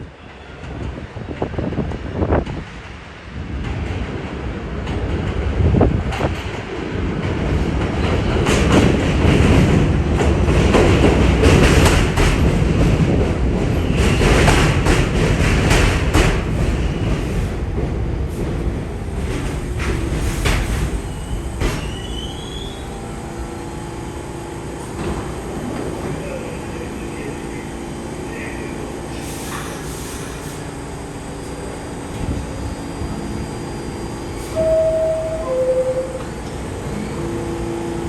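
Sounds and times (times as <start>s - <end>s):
subway train rumbling: 0.0s - 38.0s
wheel squeal: 21.1s - 22.9s.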